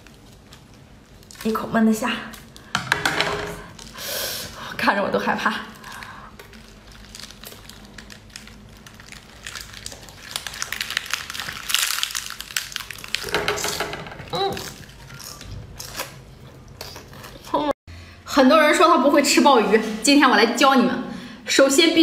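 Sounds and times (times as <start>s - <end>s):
food being chewed: 5.8s - 13.3s, 14.3s - 17.6s.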